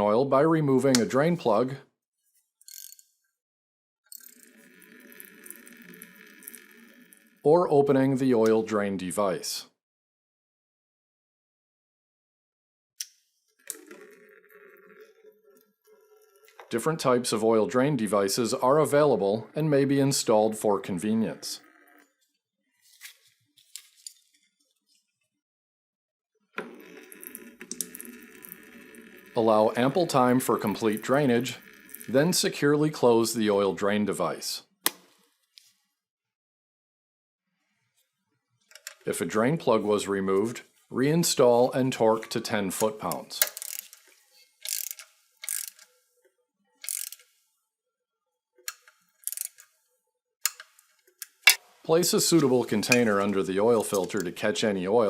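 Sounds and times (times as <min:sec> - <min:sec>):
ratchet wrench clicking: 0:44.6 - 0:45.9, 0:46.8 - 0:47.2, 0:48.8 - 0:49.6.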